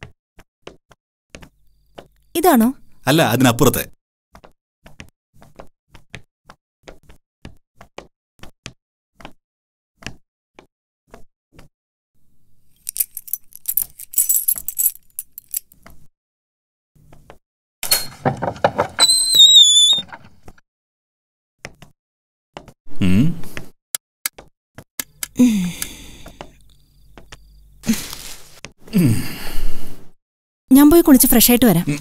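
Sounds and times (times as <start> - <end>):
keys jingling: 12.8 - 15.8
door hinge squeaking: 17.8 - 20.4.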